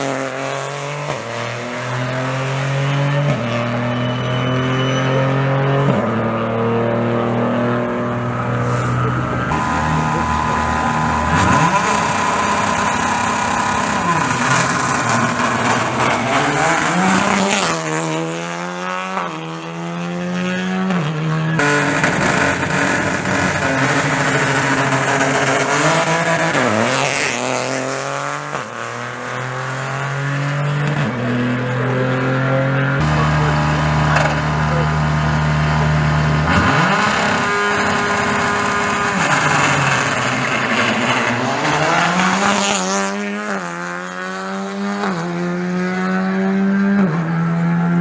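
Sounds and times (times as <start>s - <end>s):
rally car engines revving: 0.0s - 48.0s.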